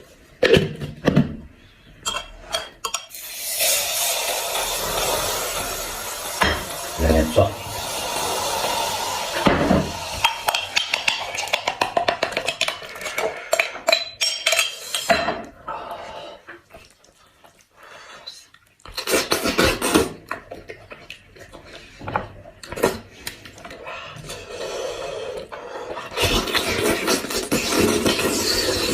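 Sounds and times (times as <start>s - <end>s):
cutlery clinking against dishes: 10.2s - 15.5s.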